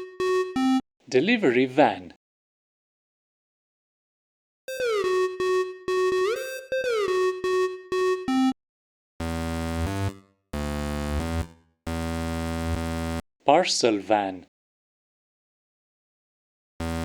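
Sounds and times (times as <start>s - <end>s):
pulsing synth notes sliding in pitch: 4.7s - 8.5s
buzzy low synth chords: 9.2s - 13.2s.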